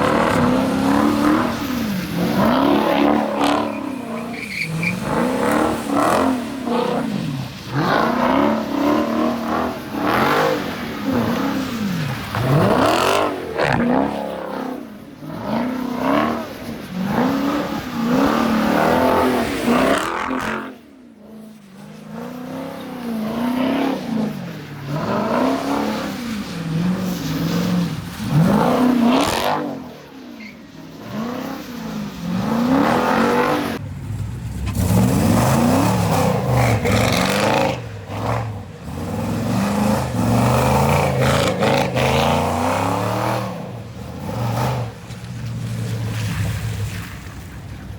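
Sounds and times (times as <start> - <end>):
car engine revving in blips: 0.0 - 20.6, 31.0 - 47.0.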